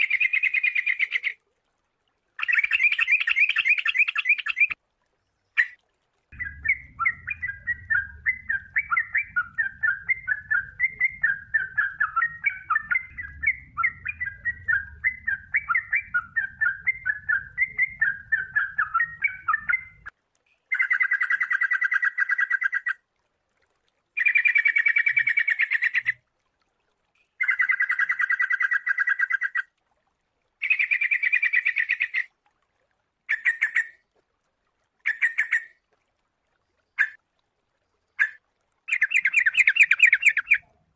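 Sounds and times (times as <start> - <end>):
bulbul song: 0.0 - 1.4, 2.4 - 4.8, 5.5 - 23.0, 24.2 - 26.2, 27.4 - 29.7, 30.6 - 32.3, 38.2 - 40.8
faint low rumble: 6.4 - 20.1.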